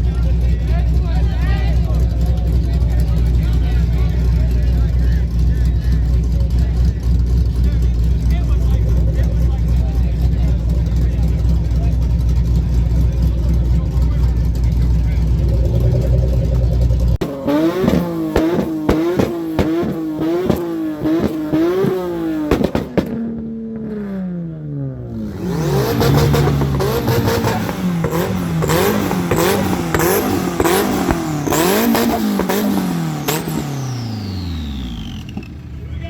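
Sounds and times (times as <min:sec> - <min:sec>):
car engine revving: 0:00.0 - 0:36.0
exhaust crackling pops: 0:07.5 - 0:23.9, 0:26.2 - 0:35.6.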